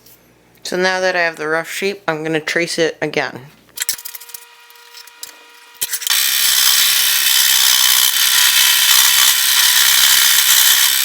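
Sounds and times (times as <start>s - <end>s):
scroll saw running: 3.8s - 11.0s.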